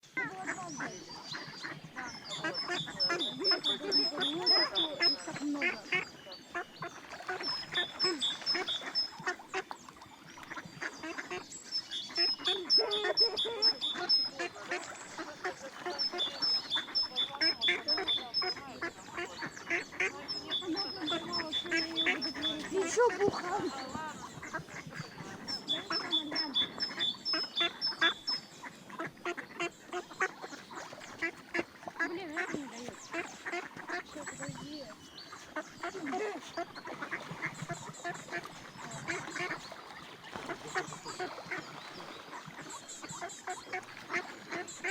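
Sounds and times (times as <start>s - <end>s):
ducks quacking: 0.0s - 44.9s
small bird chirping: 23.6s - 28.6s.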